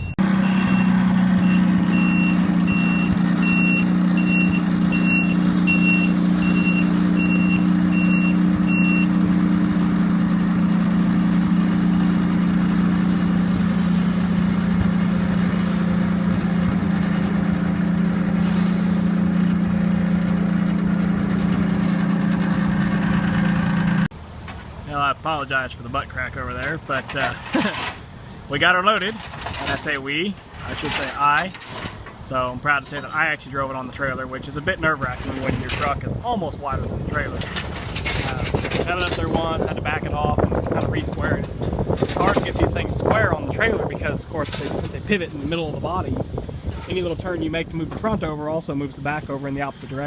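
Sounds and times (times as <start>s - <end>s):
reversing alarm beeping: 0.0s - 9.2s
diesel truck engine running: 0.0s - 50.0s
air brake hiss: 18.4s - 19.3s.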